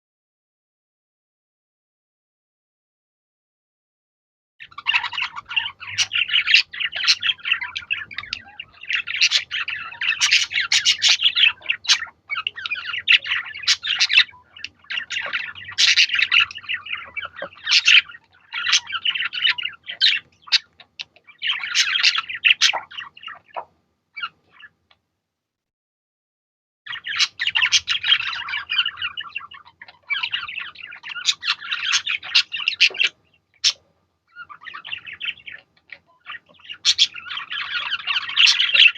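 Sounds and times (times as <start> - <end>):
budgerigars chattering and warbling: 4.6 - 24.8, 26.9 - 38.9.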